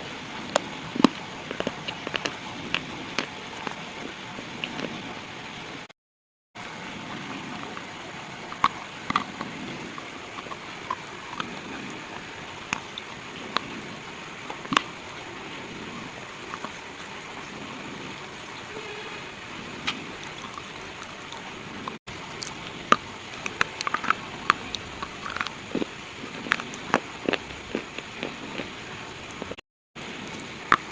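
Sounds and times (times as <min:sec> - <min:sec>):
slate crunching and snapping: 0:00.4 - 0:03.8, 0:14.5 - 0:15.2, 0:19.8 - 0:29.6.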